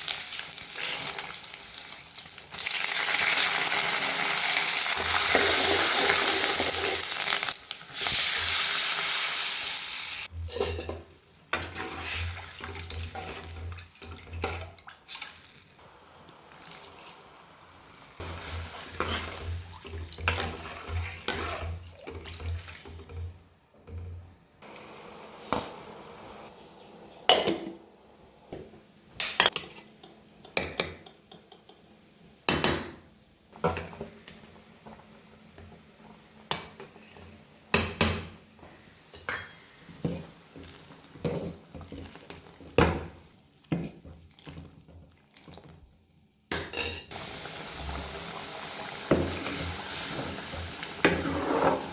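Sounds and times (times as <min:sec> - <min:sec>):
metal utensils clinking on pots: 0:10.4 - 0:14.7.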